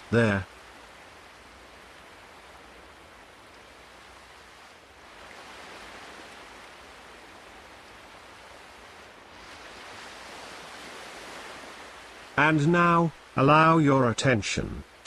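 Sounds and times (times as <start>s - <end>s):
ocean waves hissing: 0.0s - 0.4s, 4.0s - 14.2s.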